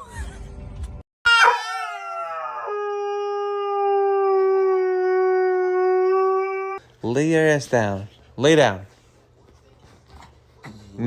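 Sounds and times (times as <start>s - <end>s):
dog howling: 1.3s - 6.8s.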